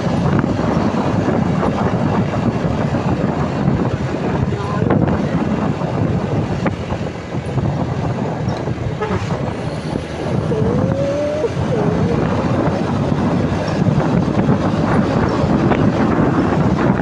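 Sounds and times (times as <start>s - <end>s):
truck engine and road noise: 0.0s - 17.0s
wind buffeting microphone: 0.0s - 17.0s.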